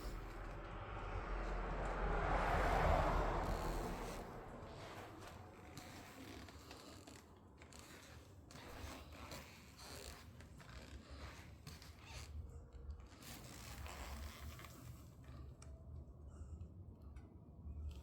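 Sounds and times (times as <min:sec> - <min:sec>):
low rumble: 0:00.0 - 0:05.7.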